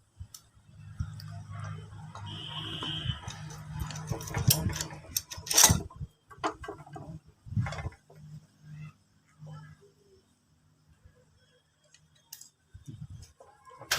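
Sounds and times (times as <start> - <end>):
tools clicking and knocking on metal: 1.6 - 8.1.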